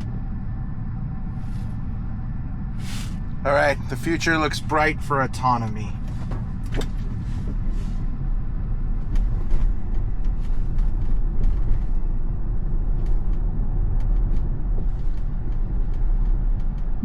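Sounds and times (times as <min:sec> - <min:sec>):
tyre and wind noise in car: 0:06.0 - 0:17.0.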